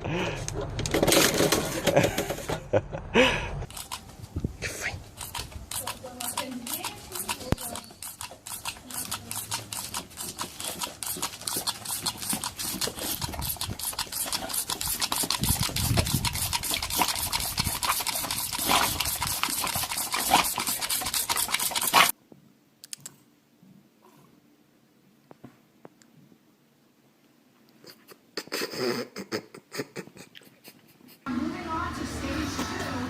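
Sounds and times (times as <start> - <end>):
rapid scratching and rubbing: 4.8 - 22.1.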